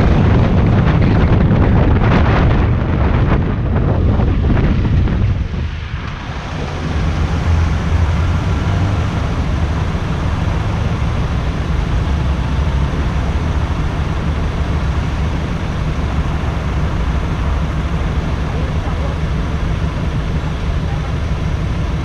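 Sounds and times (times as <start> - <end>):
wind noise: 0.0 - 22.0
motorcycle engine idling: 6.5 - 22.0.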